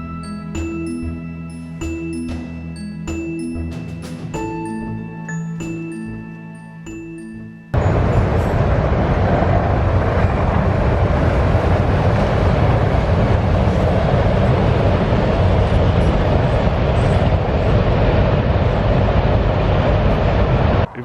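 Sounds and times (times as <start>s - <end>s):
train rumbling and rattling: 7.8s - 21.0s.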